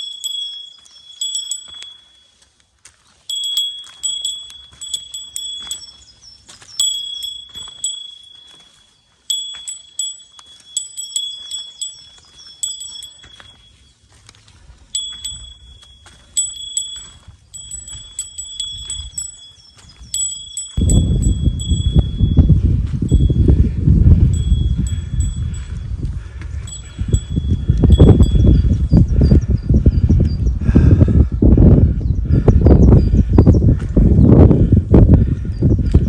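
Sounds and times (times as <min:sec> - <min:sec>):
small metal bell jingling: 0:00.0 - 0:02.5, 0:03.2 - 0:14.0, 0:14.8 - 0:25.9, 0:26.6 - 0:29.0.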